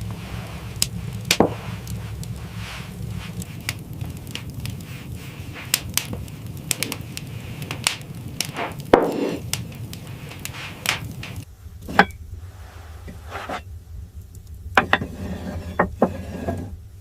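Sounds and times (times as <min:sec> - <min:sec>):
sharp cracks and knocks: 0:00.0 - 0:12.1
low rumble: 0:00.0 - 0:17.0.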